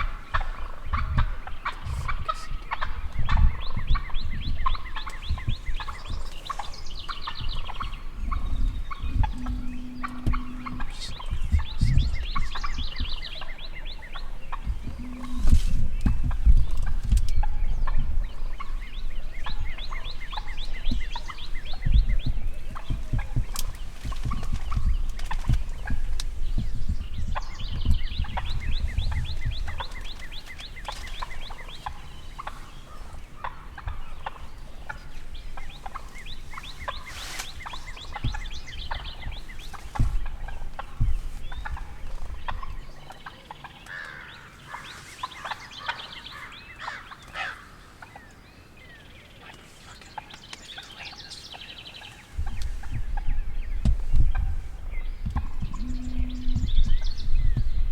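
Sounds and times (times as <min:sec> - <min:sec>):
turkey gobbling: 0:00.0 - 0:48.3, 0:52.3 - 0:57.0
low rumble: 0:03.0 - 0:43.4, 0:52.4 - 0:57.9
scattered thumps: 0:09.0 - 0:12.0.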